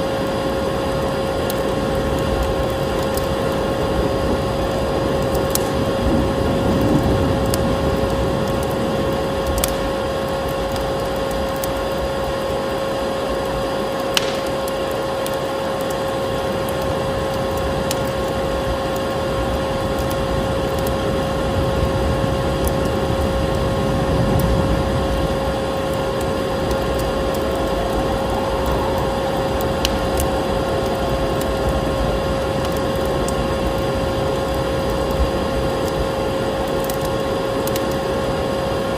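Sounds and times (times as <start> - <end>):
wood fire crackling and popping: 0.0 - 38.9
vacuum cleaner motor whining: 23.7 - 36.4.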